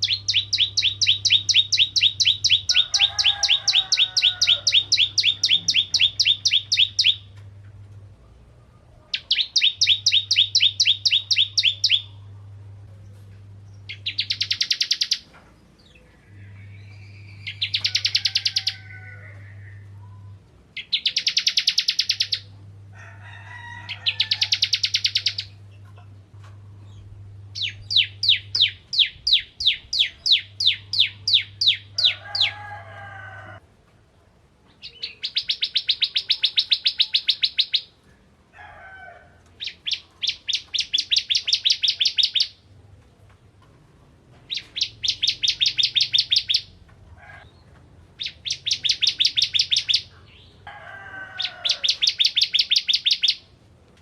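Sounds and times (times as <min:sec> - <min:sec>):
bird singing fast trills: 0:00.0 - 0:07.3, 0:09.1 - 0:12.2, 0:13.9 - 0:15.3, 0:16.0 - 0:18.8, 0:20.2 - 0:22.5, 0:24.0 - 0:25.6, 0:27.5 - 0:32.5, 0:34.8 - 0:37.9, 0:39.6 - 0:42.6, 0:44.5 - 0:46.8, 0:48.2 - 0:50.6, 0:51.4 - 0:53.5
steady low hum: 0:10.7 - 0:14.2, 0:25.0 - 0:32.0.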